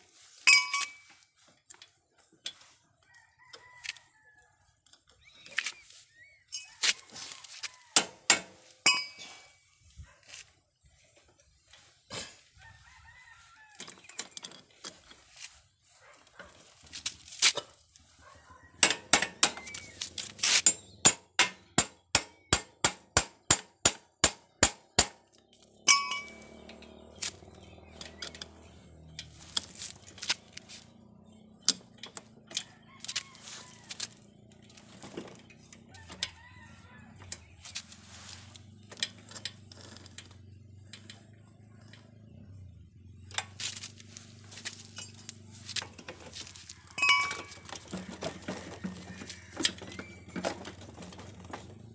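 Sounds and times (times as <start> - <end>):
tools clinking and knocking: 0.4 - 2.8, 7.7 - 9.6, 13.8 - 15.4, 18.8 - 30.8, 31.6 - 33.2, 38.9 - 41.3, 44.6 - 51.9
sharp metal strikes: 25.9 - 26.6.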